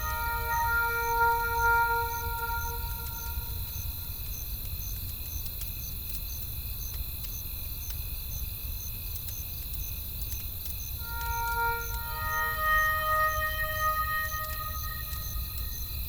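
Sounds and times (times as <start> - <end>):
high insect trill: 0.0 - 6.3, 10.6 - 16.0
insects chirping: 0.0 - 16.0.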